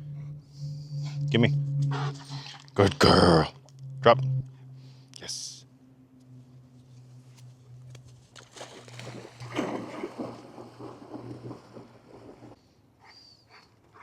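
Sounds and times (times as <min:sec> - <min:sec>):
low hum: 0:00.0 - 0:12.9
dog splashing through water: 0:08.1 - 0:12.6.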